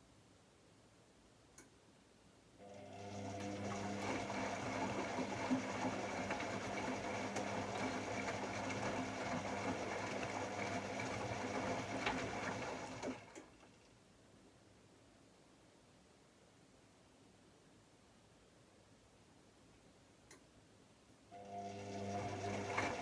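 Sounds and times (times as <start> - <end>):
washing machine motor hum: 2.6 - 13.8, 21.4 - 23.0.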